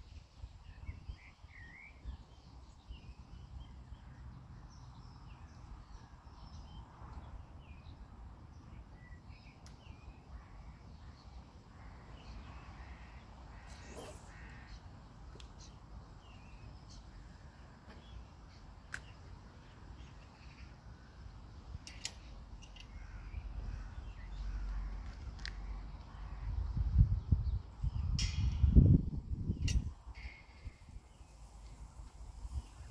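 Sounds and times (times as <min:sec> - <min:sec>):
birds calling: 0:08.6 - 0:26.6.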